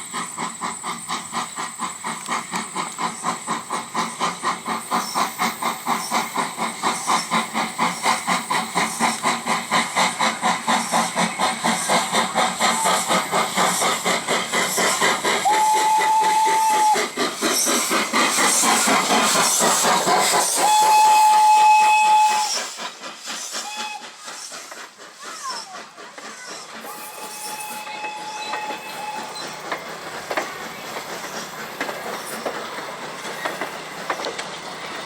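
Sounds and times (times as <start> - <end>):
steam locomotive exhaust chuffing: 0.0 - 35.0
steam whistle blasts: 15.4 - 17.0, 20.6 - 22.6, 23.6 - 24.1, 26.8 - 29.4.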